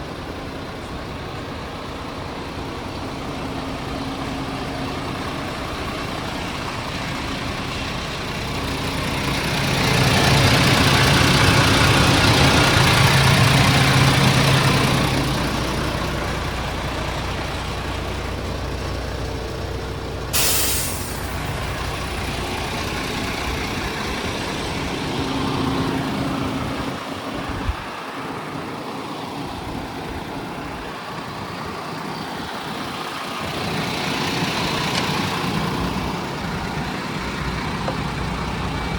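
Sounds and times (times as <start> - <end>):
truck diesel engine running: 0.0 - 38.9
air hiss: 20.4 - 21.7.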